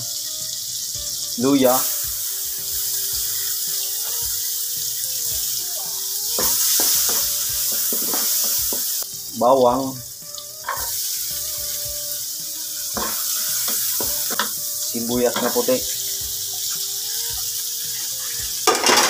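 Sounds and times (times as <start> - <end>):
ginger sizzling in wok: 0.0 - 19.0
person speaking: 1.4 - 2.0, 9.3 - 10.1, 14.1 - 16.9.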